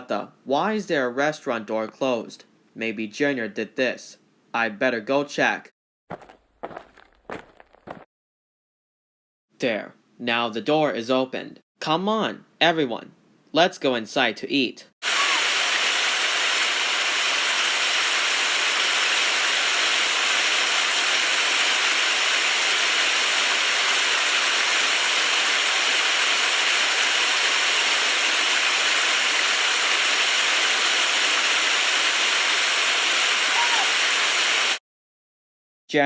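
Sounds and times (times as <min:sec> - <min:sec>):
water gushing: 0:15.0 - 0:34.8.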